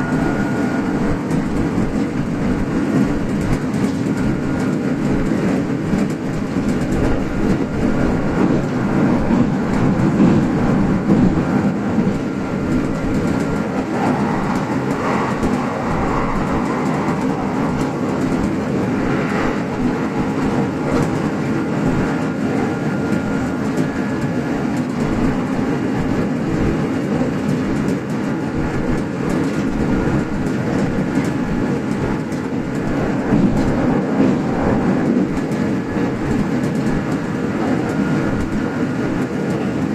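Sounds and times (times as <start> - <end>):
train running rumble: 0.0 - 39.9
wheels clicking over rails: 0.0 - 39.9.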